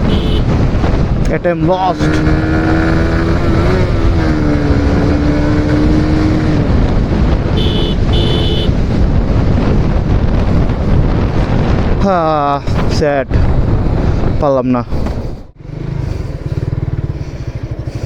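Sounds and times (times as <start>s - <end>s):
short horn honks: 0.0s - 0.5s, 7.6s - 8.8s
motorcycle engine revving high: 0.0s - 1.0s, 1.8s - 8.8s
heavy wind noise: 0.0s - 18.0s.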